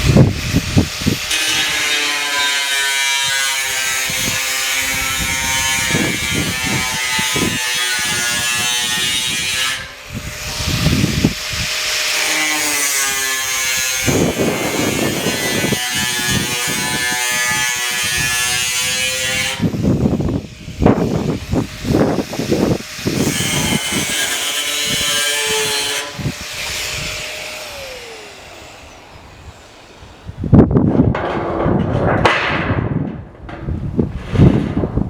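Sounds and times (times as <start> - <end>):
power tool cutting metal sheet: 0.0 - 30.1, 30.8 - 35.0
sharp metallic knocks: 31.0 - 33.8.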